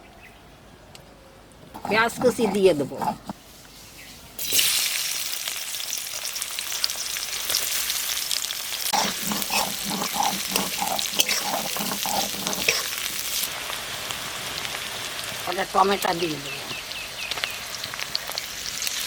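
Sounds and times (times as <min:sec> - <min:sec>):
stirring scraping strokes: 0:01.7 - 0:03.6, 0:08.9 - 0:13.5
onion sizzling in hot oil: 0:04.4 - 0:19.0.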